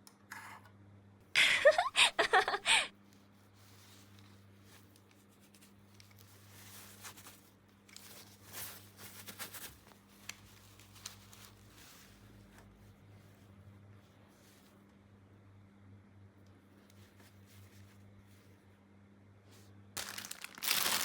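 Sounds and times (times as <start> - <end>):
plastic packaging rustling: 8.0 - 12.2, 20.0 - 21.0.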